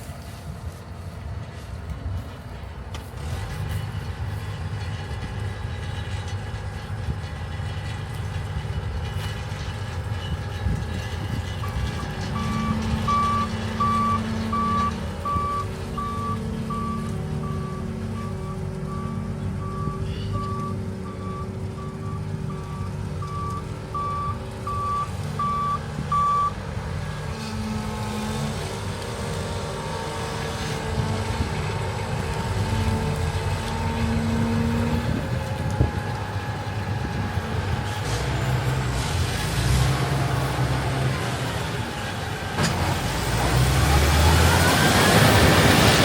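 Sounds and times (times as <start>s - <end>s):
reversing alarm beeps: 12.4s - 26.6s.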